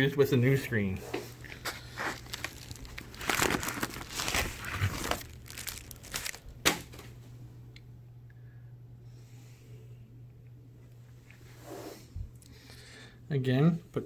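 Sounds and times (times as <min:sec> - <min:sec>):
plastic packaging crinkling: 0:01.6 - 0:07.1.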